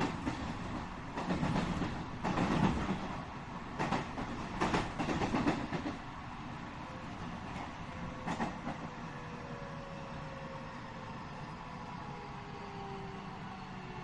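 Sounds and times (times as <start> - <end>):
wheels clacking over rail joints: 0.0 - 6.1
train wheels rumbling: 0.0 - 9.2.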